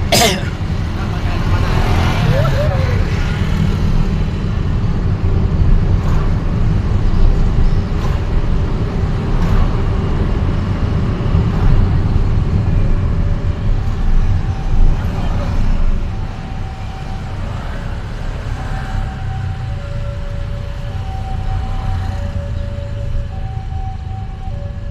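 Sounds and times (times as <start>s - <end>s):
road noise: 0.0s - 24.9s
vehicle rumble: 0.0s - 24.9s.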